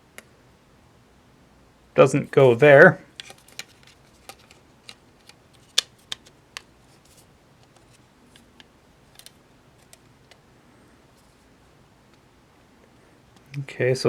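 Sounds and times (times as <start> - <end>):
plastic panels clicking and tapping: 3.2 - 6.7, 7.6 - 10.4.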